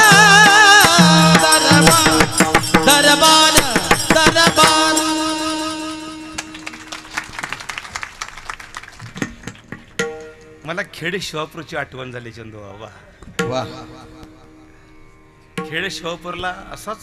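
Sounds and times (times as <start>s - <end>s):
person singing: 0.0s - 6.6s, 13.4s - 14.5s.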